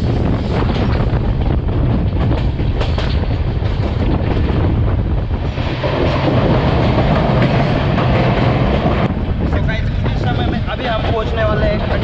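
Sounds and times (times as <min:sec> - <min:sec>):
train wheels rumbling on rails: 0:00.0 - 0:12.0
wheels clicking and clattering: 0:00.4 - 0:04.7.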